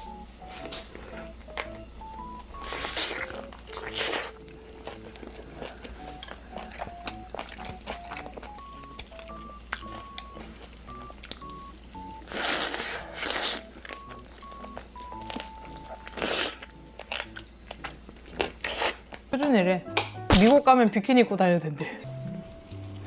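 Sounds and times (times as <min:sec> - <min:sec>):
beeping background music: 0:00.0 - 0:18.7, 0:19.6 - 0:21.0, 0:22.0 - 0:23.0
crunchy bites: 0:00.0 - 0:19.3
person chewing food: 0:00.0 - 0:19.3, 0:22.0 - 0:23.0
wet mouth clicks: 0:16.1 - 0:19.2.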